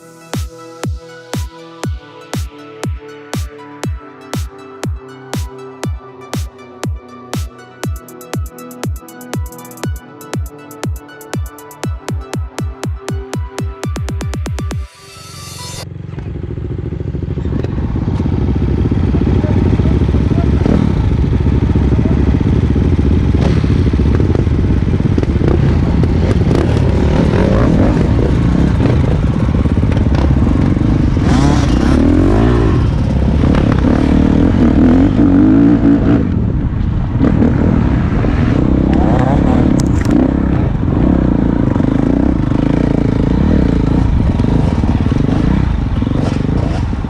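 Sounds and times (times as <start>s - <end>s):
electronic music: 0.0s - 15.9s
dirt bike engine revving: 16.1s - 47.0s.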